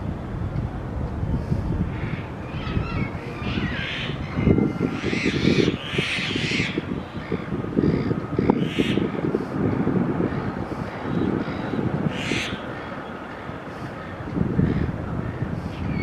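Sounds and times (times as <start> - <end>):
birds squawking: 2.0 - 9.2, 10.9 - 16.0.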